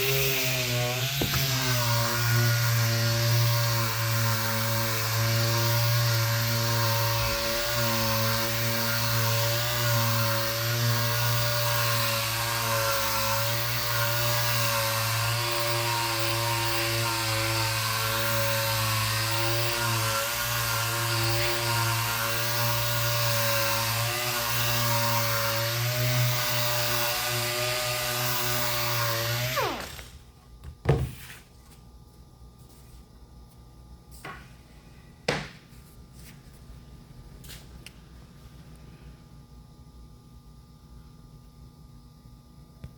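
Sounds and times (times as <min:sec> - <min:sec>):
power sander sanding wood: 0:00.0 - 0:30.1.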